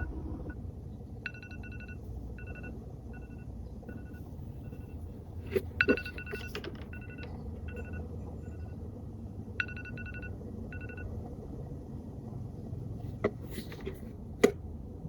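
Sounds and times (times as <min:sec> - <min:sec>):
steady low hum: 0:00.0 - 0:15.0
short electronic beeps: 0:09.6 - 0:11.1.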